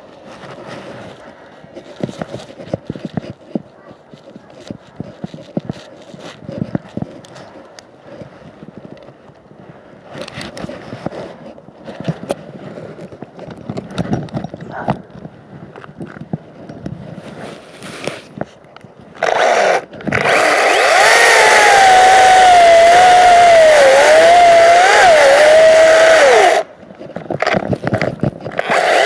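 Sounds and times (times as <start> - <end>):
rustling: 0.0 - 9.2
cordless chainsaw whine: 19.2 - 26.7, 28.5 - 29.0.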